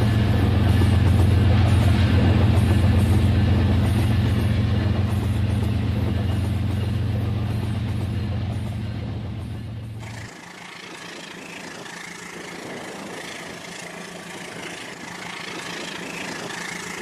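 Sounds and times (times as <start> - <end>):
toy train motor hum with rattling: 10.0 - 17.0.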